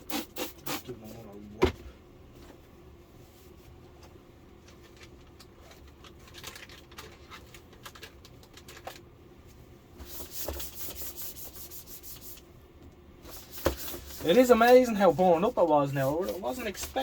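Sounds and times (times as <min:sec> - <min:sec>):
cloth rubbing on plastic: 0:10.0 - 0:12.4, 0:13.3 - 0:17.0.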